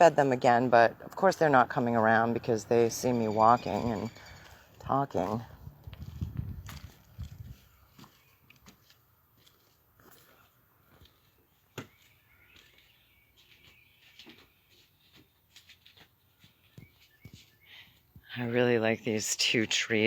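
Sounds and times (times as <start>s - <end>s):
faint bird chirps and song: 7.7s - 8.9s, 11.0s - 15.4s, 16.2s - 18.9s.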